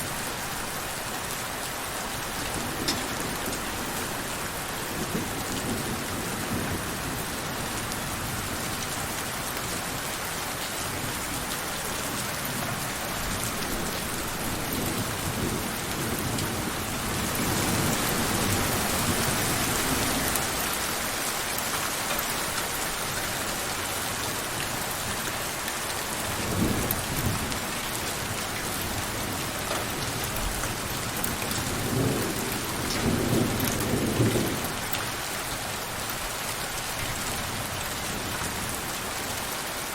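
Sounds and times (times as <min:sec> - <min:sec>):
heavy rain falling: 0:00.0 - 0:39.9
thunder rumbling: 0:02.2 - 0:08.7, 0:26.2 - 0:34.8.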